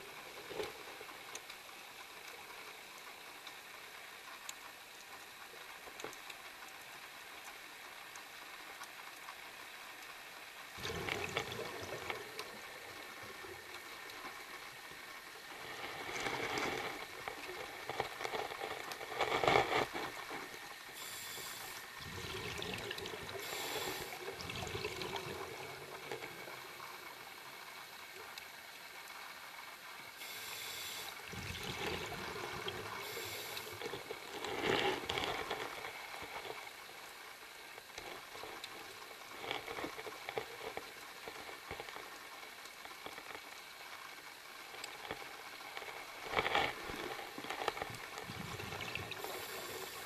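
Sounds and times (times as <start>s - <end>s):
underwater hiss: 19.9s - 27.5s, 30.2s - 37.0s, 45.2s - 50.0s.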